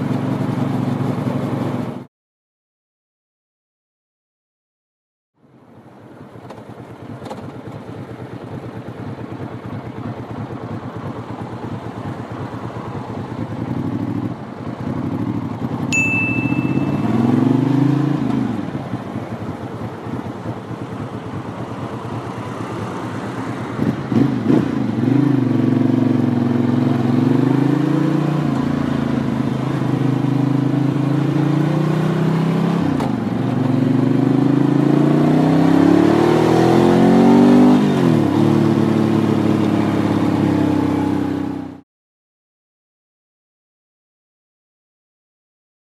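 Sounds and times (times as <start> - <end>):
motorcycle engine revving: 6.3 - 41.8
short high beep: 16.0 - 17.6.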